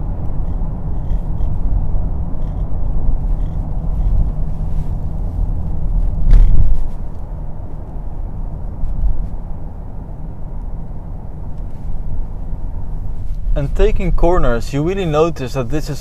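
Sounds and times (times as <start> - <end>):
diesel engine rumble: 0.0 - 16.0
road noise: 0.0 - 16.0
loud thump: 6.2 - 6.9.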